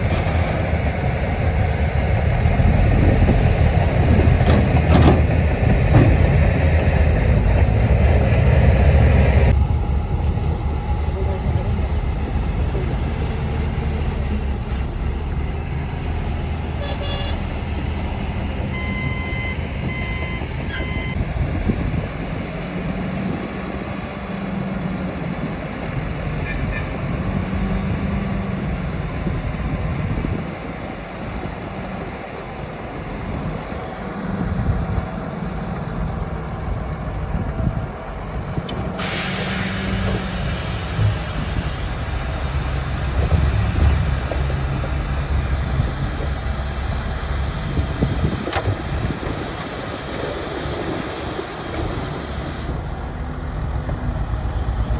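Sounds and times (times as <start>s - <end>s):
heavy diesel machinery running: 0.0s - 54.9s
reversing beeps: 16.8s - 21.2s
air hiss: 39.0s - 42.2s.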